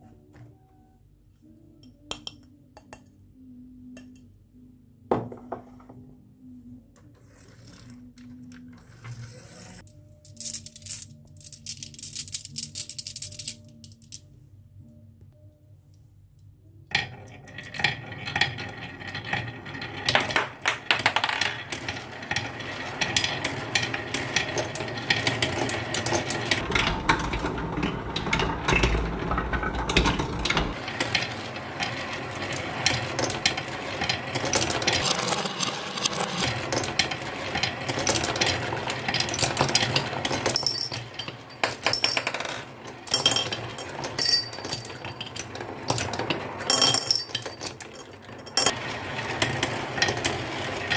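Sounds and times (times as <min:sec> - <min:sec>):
marbles clattering down wooden run: 0:17.0 - 0:26.6, 0:28.4 - 0:50.9.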